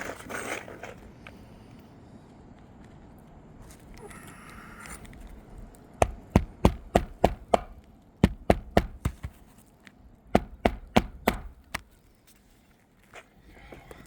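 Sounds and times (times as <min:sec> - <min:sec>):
hammer striking nail: 0:06.0 - 0:09.4, 0:10.4 - 0:11.8.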